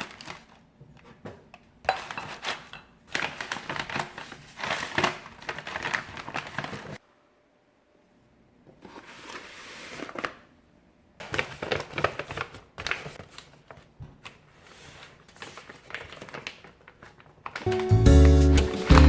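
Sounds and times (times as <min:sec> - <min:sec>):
plastic packaging crinkling: 0:00.0 - 0:00.6, 0:02.0 - 0:07.0, 0:11.3 - 0:19.0
acoustic guitar music: 0:17.7 - 0:19.0.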